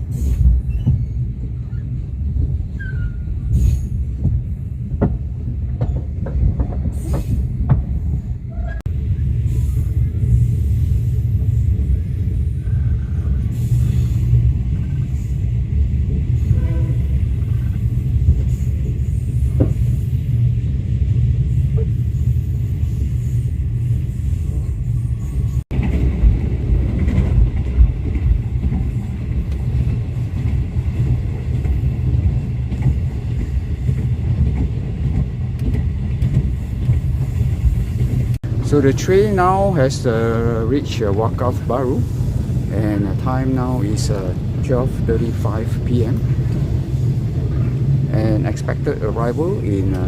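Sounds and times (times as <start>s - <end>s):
train rumbling along rails: 0.0s - 50.0s.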